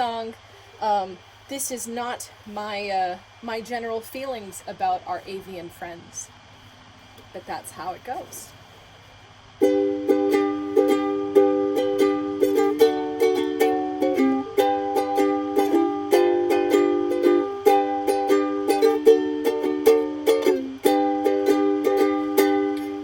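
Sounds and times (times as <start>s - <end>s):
strummed string instrument chords: 9.6s - 23.0s.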